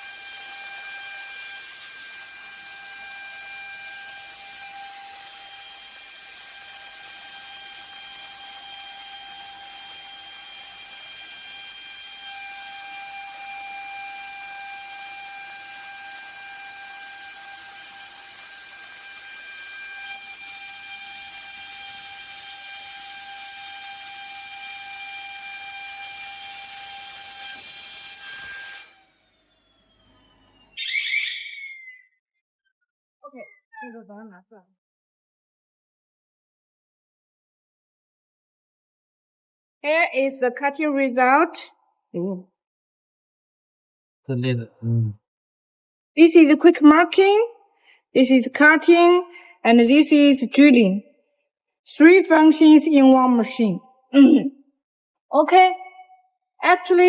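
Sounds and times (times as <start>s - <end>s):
router spindle whining: 28.8s - 31.2s.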